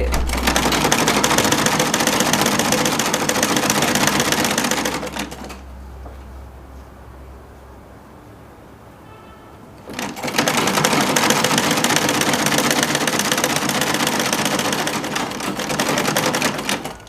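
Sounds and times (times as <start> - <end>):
sewing machine clattering: 0.0 - 5.6, 9.8 - 17.0.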